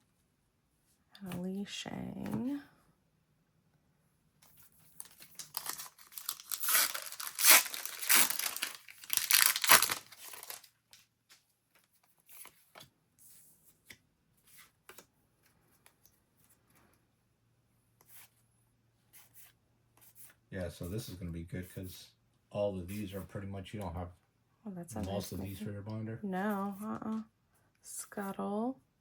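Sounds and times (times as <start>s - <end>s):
cards rustling and clicking: 4.4s - 12.9s
foil pack tearing open: 5.0s - 10.7s.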